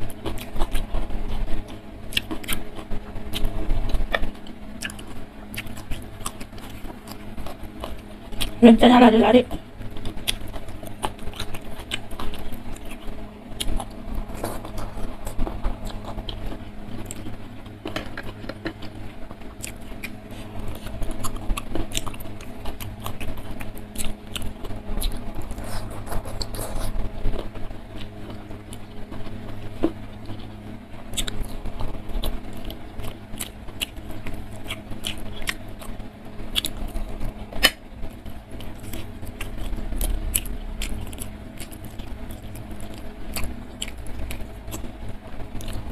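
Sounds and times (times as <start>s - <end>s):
wet chewing and lip smacks: 0.0s - 8.6s, 9.8s - 45.0s, 45.6s - 45.9s.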